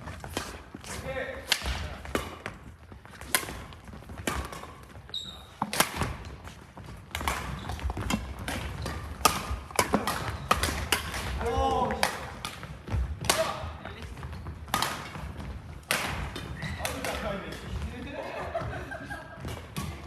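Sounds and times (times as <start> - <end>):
footsteps on court: 0.0 - 20.0
rackets hitting shuttlecock: 0.2 - 20.0
shoe squeak: 5.0 - 5.7, 7.4 - 9.1, 16.5 - 16.8.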